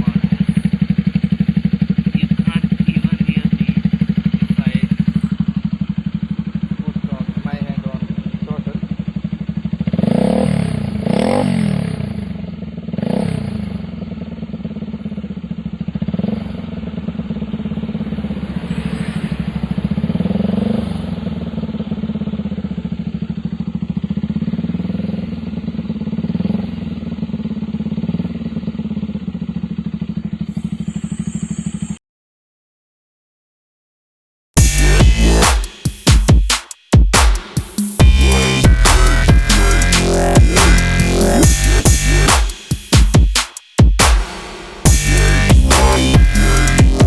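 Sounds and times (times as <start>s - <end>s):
motorcycle engine idling with blips: 0.0s - 32.0s.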